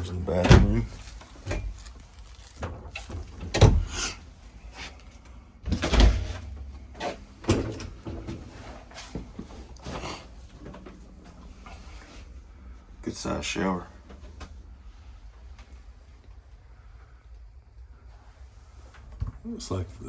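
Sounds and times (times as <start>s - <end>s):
cupboard doors opening and shutting: 0.1s - 1.8s, 2.6s - 4.3s, 5.6s - 11.0s.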